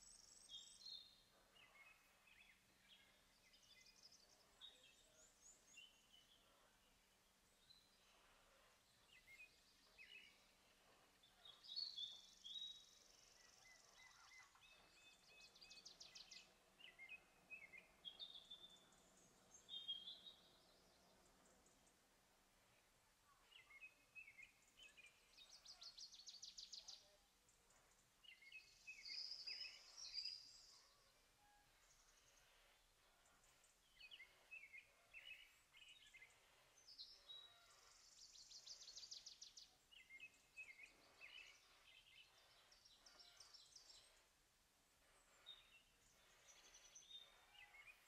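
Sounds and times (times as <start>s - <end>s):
bird calls and trills: 0.0s - 48.0s.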